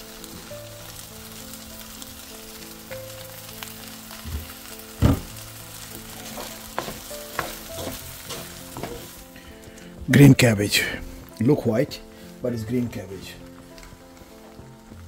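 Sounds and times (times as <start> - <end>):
rice sizzling in a pan: 0.0 - 15.0
dull knock: 5.0 - 5.3
wooden spoon stirring: 5.9 - 9.5.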